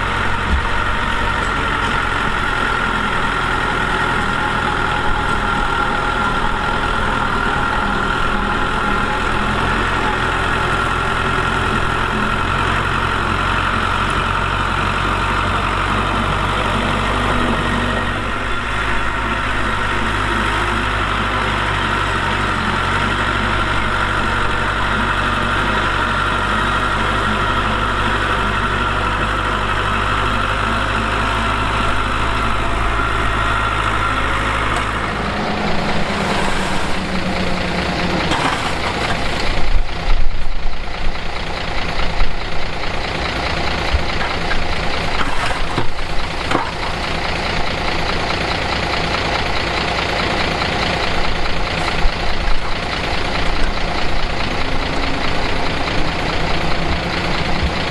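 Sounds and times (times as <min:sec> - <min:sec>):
diesel machinery engine: 0:00.0 - 0:57.9
metal knocks and clanks: 0:00.3 - 0:02.0.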